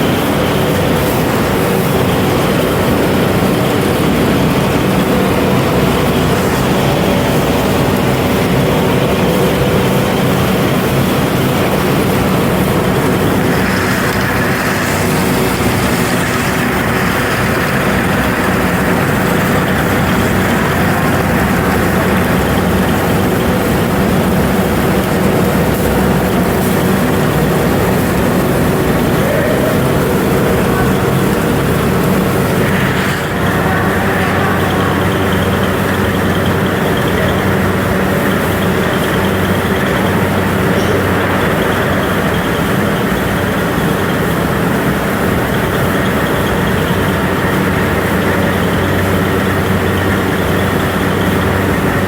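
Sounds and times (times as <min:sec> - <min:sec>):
factory machinery running: 0:00.0 - 0:52.0.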